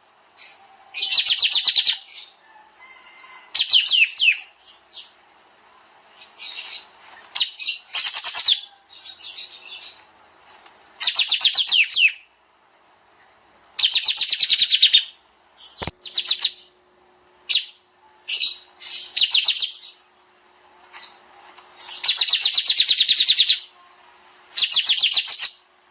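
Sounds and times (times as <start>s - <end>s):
songbird singing rapid notes: 0.4s - 2.4s, 3.6s - 5.2s, 11.0s - 13.1s, 13.8s - 16.8s, 17.5s - 20.1s, 21.8s - 23.7s, 24.5s - 25.7s.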